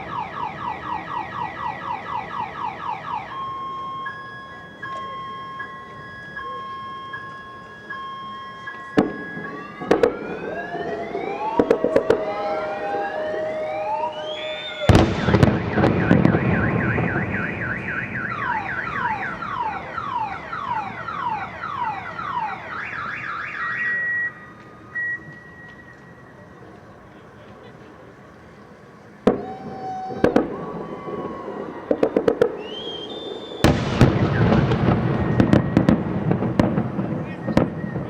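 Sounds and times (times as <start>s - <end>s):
car alarm wailing: 0.0s - 26.6s, 29.3s - 38.0s
fireworks whistling and cracking: 3.3s - 21.4s, 29.2s - 38.0s
loud firework bang: 14.1s - 19.1s, 31.9s - 38.0s.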